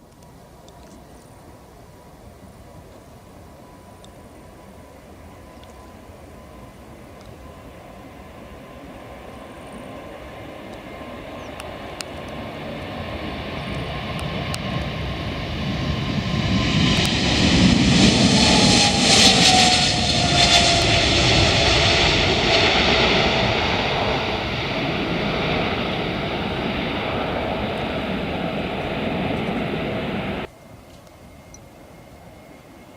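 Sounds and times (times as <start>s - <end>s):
jet engine whine: 0.2s - 32.9s
jet engine roar: 2.4s - 32.9s.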